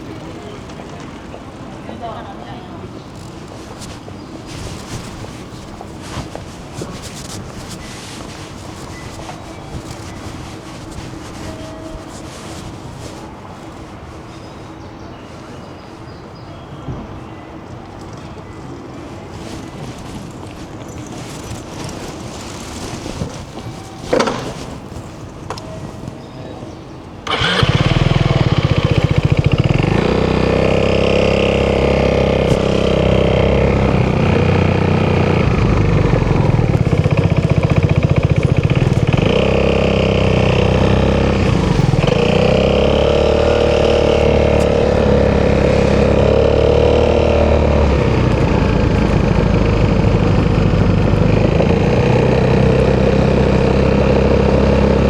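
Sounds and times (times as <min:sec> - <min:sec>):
motorcycle engine starting and idling: 0:03.0 - 0:13.3, 0:21.1 - 0:25.3, 0:27.2 - 0:55.0.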